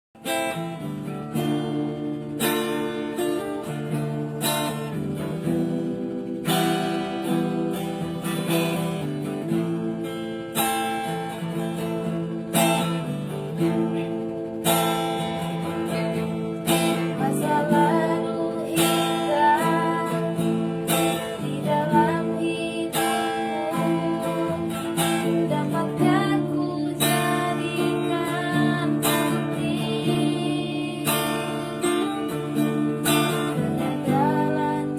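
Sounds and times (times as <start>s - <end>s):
acoustic guitar strumming chords: 0.2s - 34.9s.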